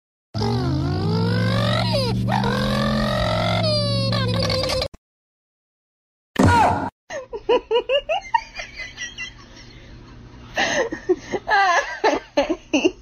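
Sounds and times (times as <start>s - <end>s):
person laughing: 7.1s - 13.0s.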